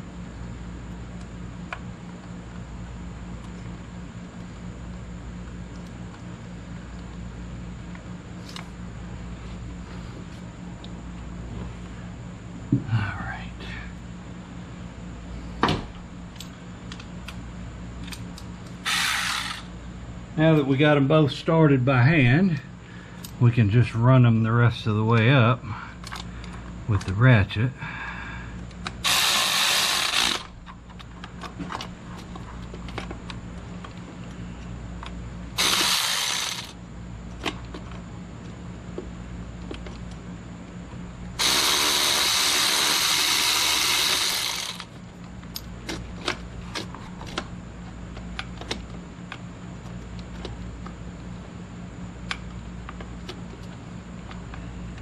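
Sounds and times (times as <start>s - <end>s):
power ratchet running screws: 18.8s - 19.7s, 29.0s - 30.5s, 35.6s - 36.8s, 41.4s - 44.9s.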